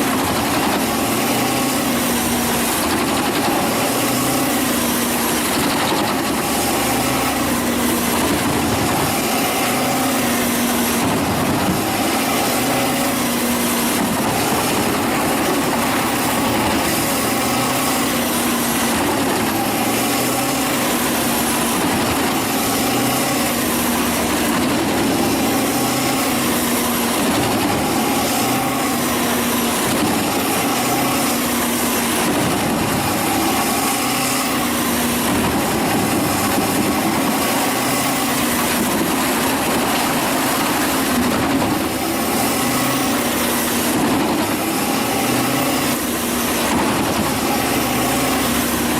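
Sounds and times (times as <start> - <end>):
wood chipper engine running: 0.0 - 48.9.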